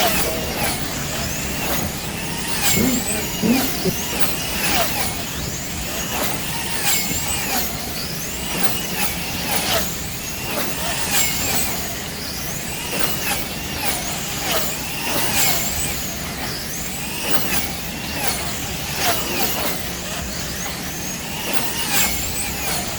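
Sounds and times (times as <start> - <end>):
slot car motors whining: 0.0 - 10.5.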